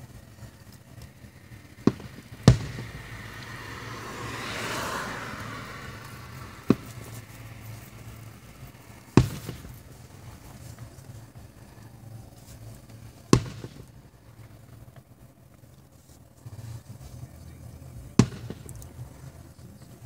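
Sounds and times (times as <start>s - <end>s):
firework shells bursting: 0.2s - 3.9s, 5.4s - 11.8s, 12.6s - 15.5s, 18.2s - 19.2s.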